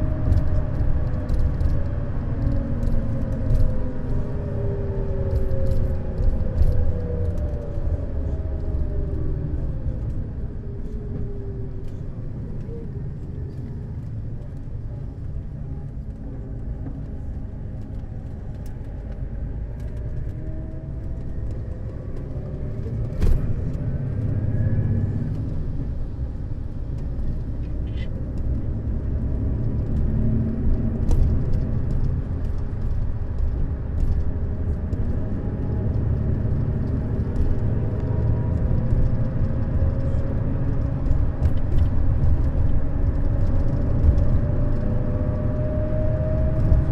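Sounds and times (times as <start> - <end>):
coach engine and road rumble: 0.0 - 46.9.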